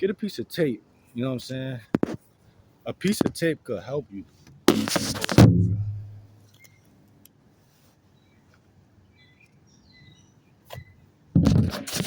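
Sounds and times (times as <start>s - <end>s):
soft thump: 4.7s - 6.3s.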